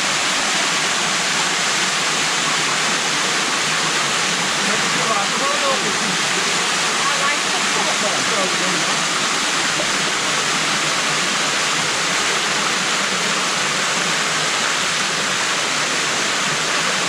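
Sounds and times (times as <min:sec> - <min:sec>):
waterfall rushing over rock: 0:00.0 - 0:17.0.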